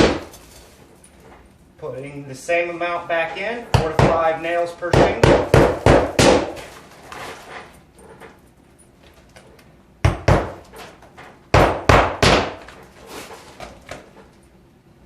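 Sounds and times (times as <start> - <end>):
hammer striking roofing nails: 0.0 - 0.4, 3.7 - 4.3, 4.9 - 6.6, 10.0 - 10.7, 11.5 - 12.7.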